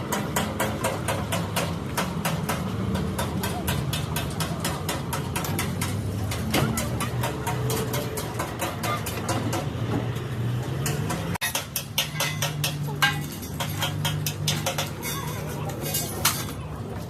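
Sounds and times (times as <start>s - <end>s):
metallic clinks and taps: 10.8s - 16.6s.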